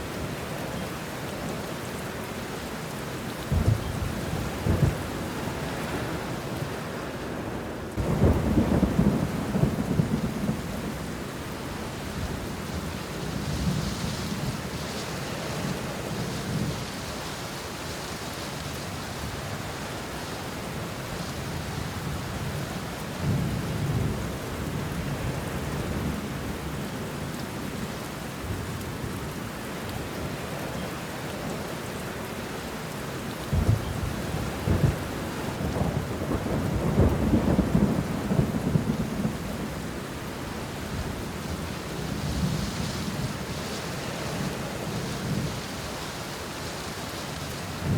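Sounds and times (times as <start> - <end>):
rain on leaves: 0.0 - 47.9
thunder rolling: 8.0 - 11.0, 33.5 - 39.5.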